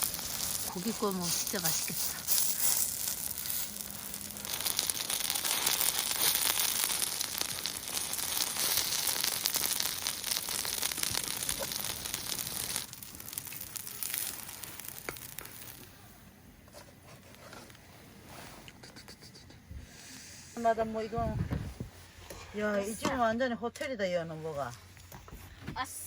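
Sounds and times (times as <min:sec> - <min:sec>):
food sizzling on hot griddle: 0:00.0 - 0:16.1.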